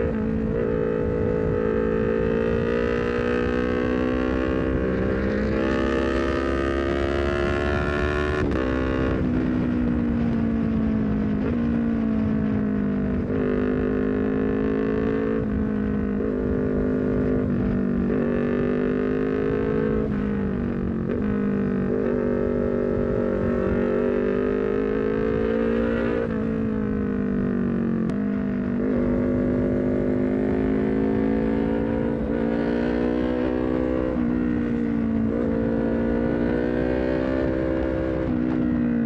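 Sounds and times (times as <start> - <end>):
motorcycle engine at high revs: 0.0 - 39.0
road and wind noise: 0.0 - 39.0.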